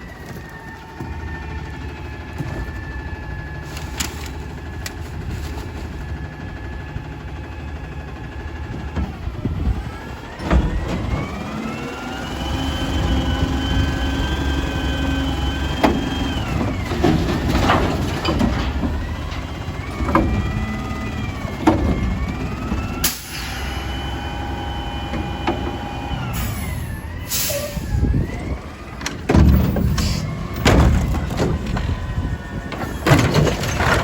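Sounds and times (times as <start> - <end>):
garbage truck diesel engine revving: 1.0 - 34.0
metallic clanks and bangs: 15.8 - 20.6, 29.0 - 34.0.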